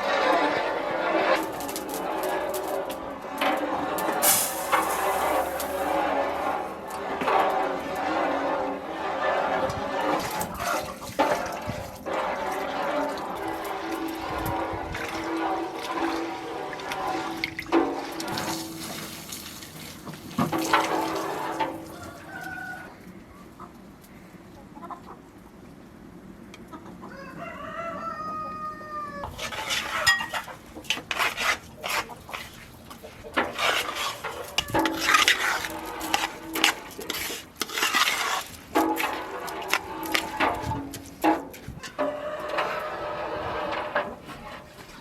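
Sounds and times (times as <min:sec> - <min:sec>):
rooster crowing: 0:21.8 - 0:23.0, 0:27.1 - 0:29.3, 0:41.8 - 0:43.1.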